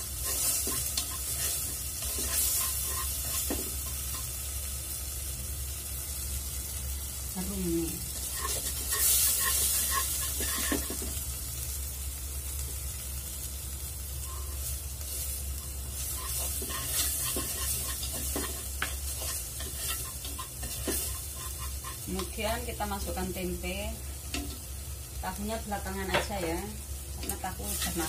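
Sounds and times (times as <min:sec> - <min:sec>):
chopsticks scraping a pot: 0:00.0 - 0:04.3, 0:08.2 - 0:11.1, 0:15.6 - 0:22.3, 0:27.6 - 0:28.0
paste sizzling in hot oil: 0:00.0 - 0:28.0.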